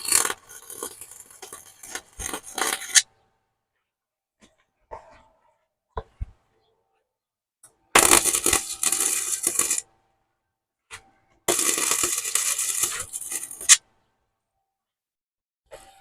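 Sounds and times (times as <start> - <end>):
welding arc crackling: 0.0 - 3.0, 8.0 - 9.8, 11.5 - 13.8.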